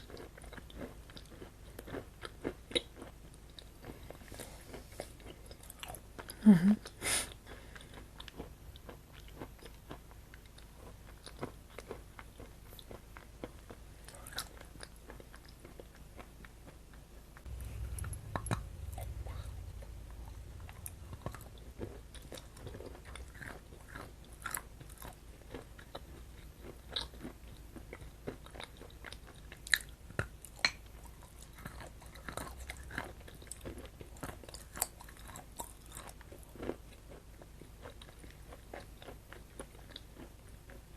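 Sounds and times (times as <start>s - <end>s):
chewing chocolate crunches: 0.0s - 40.9s
low rumble: 17.5s - 23.8s.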